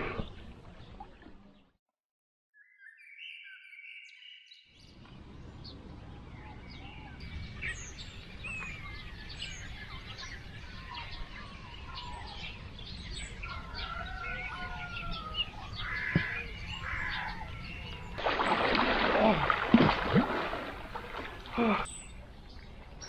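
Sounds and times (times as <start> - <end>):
birds chirping: 2.6 - 23.0
low outdoor background noise: 4.8 - 23.0.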